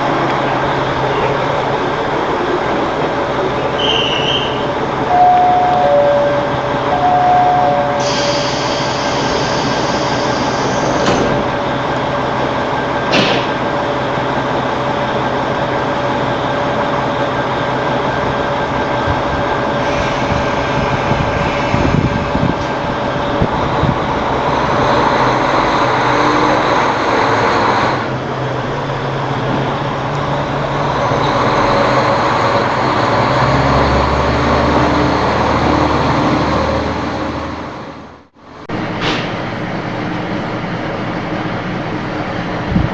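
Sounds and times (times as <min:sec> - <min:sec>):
train wheels rumbling: 0:00.0 - 0:42.9
high screech: 0:03.8 - 0:11.0.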